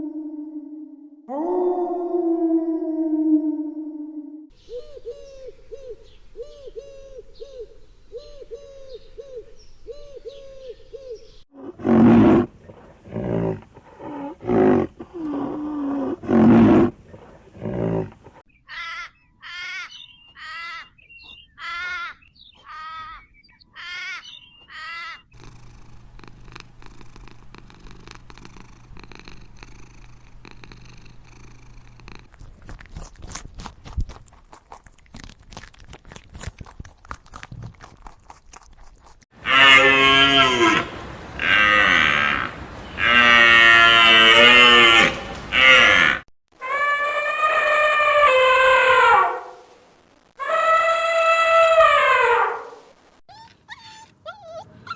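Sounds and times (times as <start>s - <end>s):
wavering high animal calls: 18.6s - 25.3s, 39.4s - 49.5s, 50.4s - 52.7s
loud animal calls: 18.7s - 25.4s, 39.4s - 49.4s
soft animal call: 39.4s - 49.5s.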